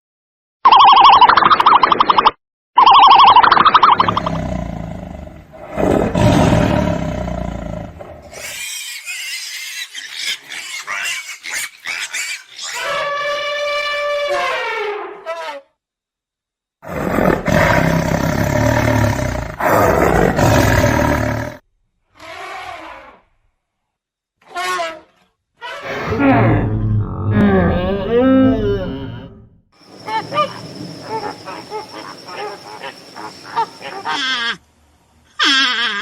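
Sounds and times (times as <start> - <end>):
wild animal roaring: 4.0 - 8.6, 16.8 - 21.6, 25.8 - 29.4
drawn-out animal call: 29.9 - 34.6.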